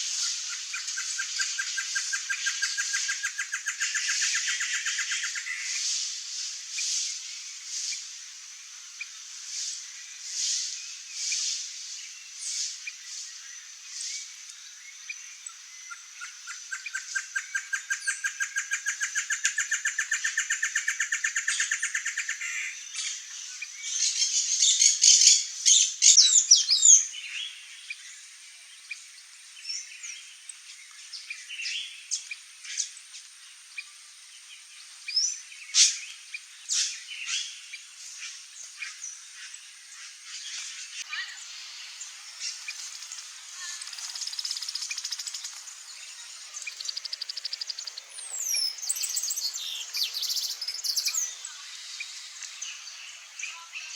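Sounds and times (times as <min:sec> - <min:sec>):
bird chirps: 0:15.0 - 0:27.3, 0:38.2 - 0:53.9.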